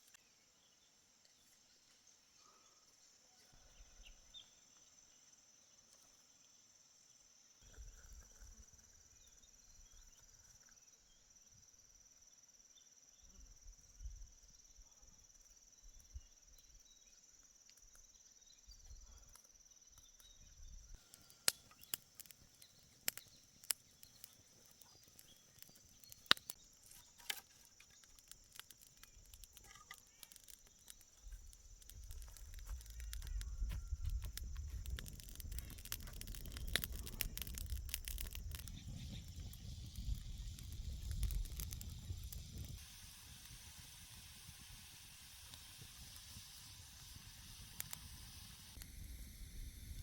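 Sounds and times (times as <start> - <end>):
insect chorus: 0.0 - 50.0
low rumbles: 31.4 - 42.8.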